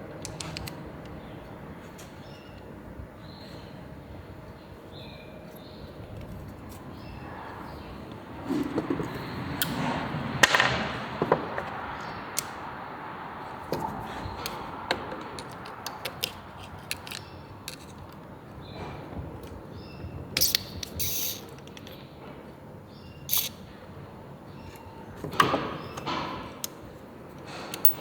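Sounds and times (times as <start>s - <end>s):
clicks and knocks of tools: 0.2s - 2.7s, 13.7s - 19.6s, 20.4s - 22.4s, 23.3s - 23.6s, 24.6s - 28.0s
metal parts clattering: 20.4s - 22.0s, 23.3s - 23.6s.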